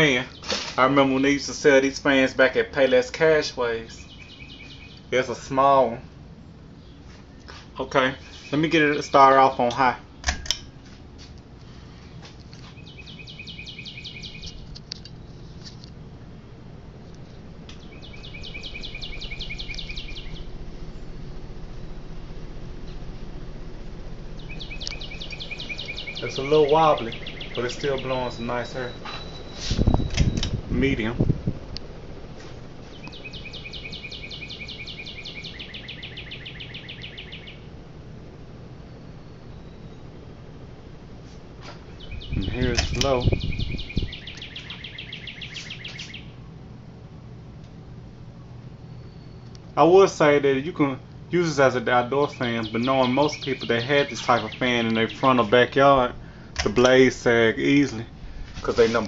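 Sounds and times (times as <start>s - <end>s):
fan motor hum: 0.0s - 59.0s
bird trilling: 4.0s - 5.1s, 12.7s - 14.6s, 17.8s - 37.8s, 41.9s - 46.4s, 51.4s - 55.5s.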